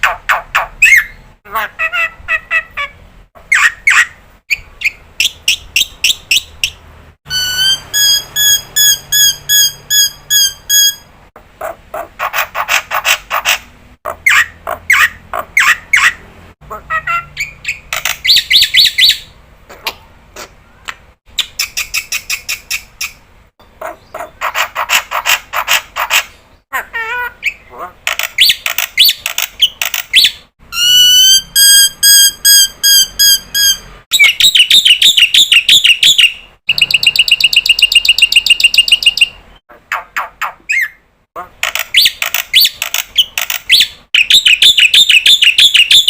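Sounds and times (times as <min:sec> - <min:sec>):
ringing whistles: 0:07.3 - 0:11.1, 0:30.7 - 0:34.5.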